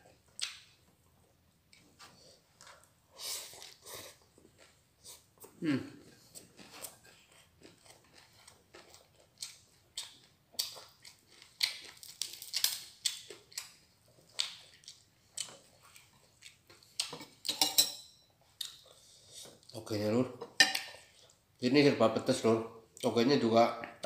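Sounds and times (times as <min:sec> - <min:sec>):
man chewing food: 0:00.0 - 0:17.6, 0:18.3 - 0:19.8, 0:20.7 - 0:21.6.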